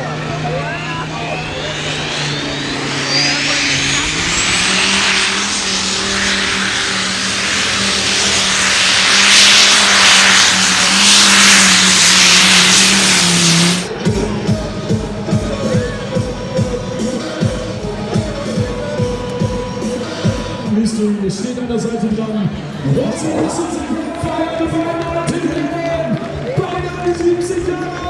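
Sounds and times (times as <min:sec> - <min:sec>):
loud rushing noise: 0:00.0 - 0:20.7
turbo whine: 0:00.0 - 0:20.7
tractor engine running hard: 0:00.0 - 0:20.8.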